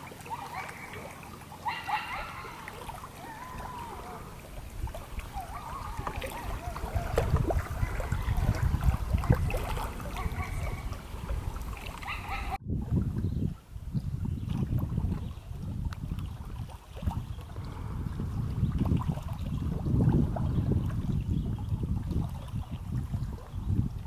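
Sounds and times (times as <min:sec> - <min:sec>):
water splashing: 0:00.0 - 0:13.1, 0:14.2 - 0:24.0
distant voices calling out: 0:00.2 - 0:08.7
wind buffeting microphone: 0:01.7 - 0:24.0.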